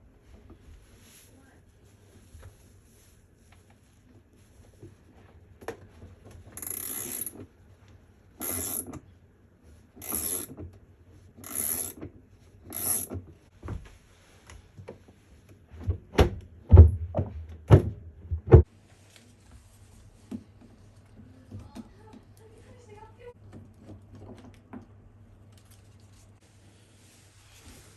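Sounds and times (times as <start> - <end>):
ratchet wrench clicking: 6.6 - 7.4, 8.4 - 8.9, 10.0 - 10.5, 11.4 - 12.0, 12.7 - 13.1.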